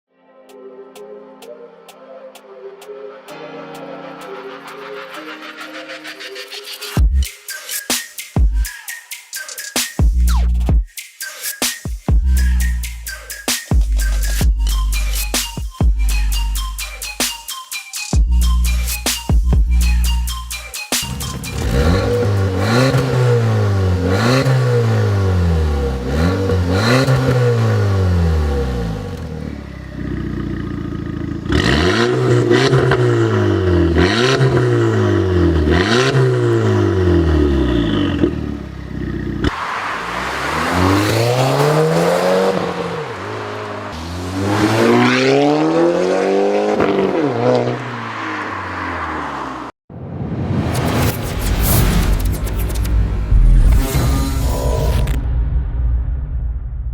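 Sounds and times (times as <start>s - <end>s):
car engine revving: 21.2s - 49.7s.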